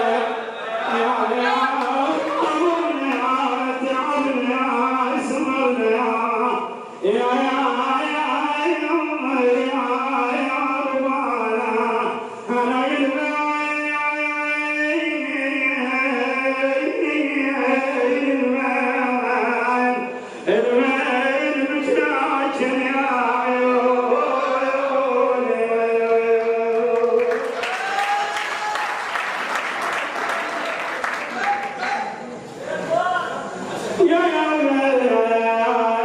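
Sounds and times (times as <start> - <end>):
person chanting unaccompanied: 0.0 - 27.6
applause: 26.9 - 32.1.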